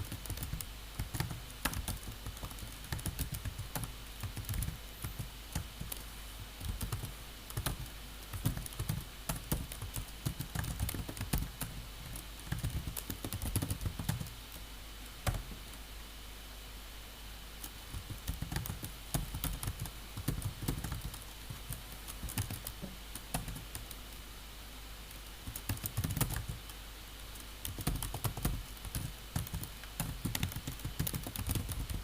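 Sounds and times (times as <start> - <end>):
computer keyboard typing: 0.0 - 6.0, 6.6 - 14.3, 17.9 - 24.0, 25.4 - 26.7, 27.4 - 32.0.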